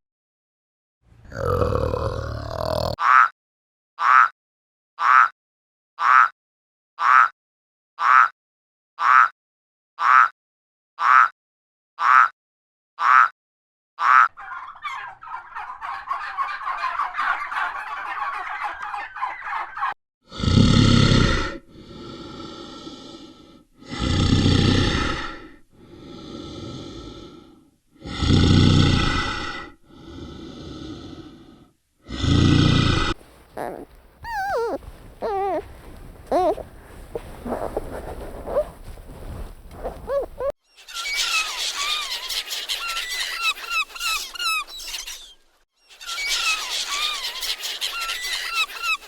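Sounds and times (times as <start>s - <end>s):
animal gobbling chatter: 14.1s - 19.9s, 33.2s - 39.0s, 39.8s - 40.5s
drawn-out animal calls: 33.2s - 40.5s.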